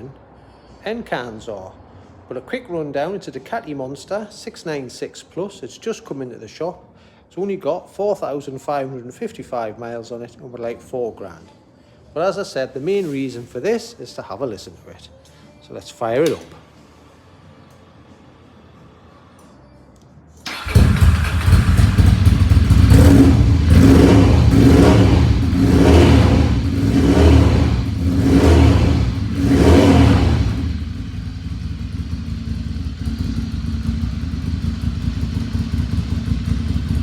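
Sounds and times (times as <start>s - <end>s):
motorcycle engine starting: 20.4s - 37.0s
motorcycle engine idling: 20.5s - 28.1s, 28.9s - 37.0s
motorcycle engine revving: 20.5s - 37.0s.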